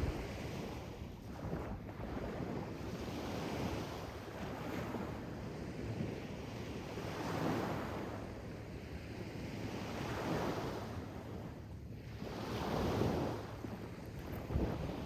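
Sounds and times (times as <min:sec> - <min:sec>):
sea waves washing in: 0:00.0 - 0:00.7.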